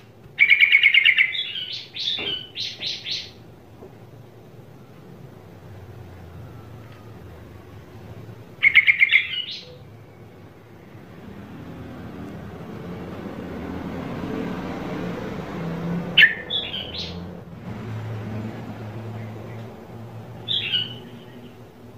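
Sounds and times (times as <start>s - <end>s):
bird chirping: 0.4s - 3.4s, 8.6s - 11.0s, 16.2s - 17.4s, 19.0s - 21.9s.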